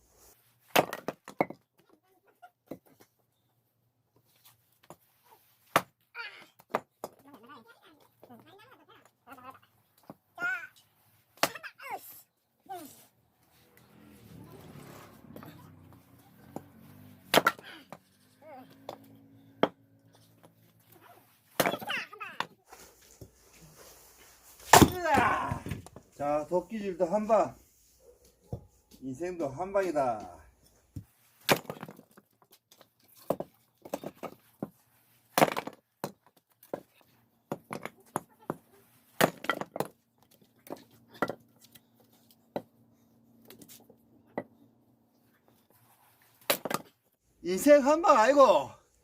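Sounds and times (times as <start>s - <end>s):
axe striking wood: 17.3s - 17.7s, 21.6s - 21.9s, 24.7s - 25.8s.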